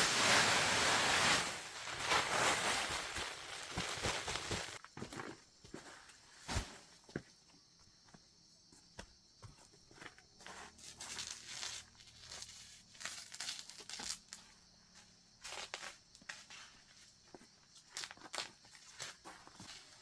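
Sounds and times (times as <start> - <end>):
rustling and tearing: 0.0 - 4.8, 11.0 - 14.2.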